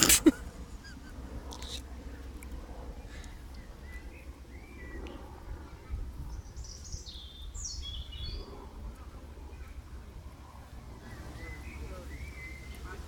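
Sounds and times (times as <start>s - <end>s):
bird chirping: 6.3s - 8.6s, 11.0s - 13.0s.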